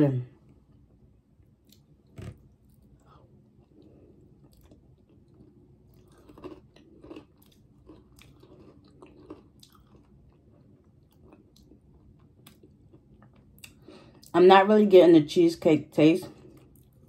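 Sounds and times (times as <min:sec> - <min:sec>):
faint chewing: 0:01.5 - 0:14.3, 0:16.3 - 0:17.0.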